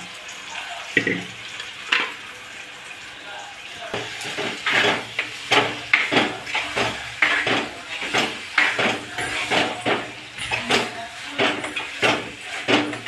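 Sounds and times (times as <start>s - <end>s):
spoon scraping a cooking pan: 4.0s - 13.0s.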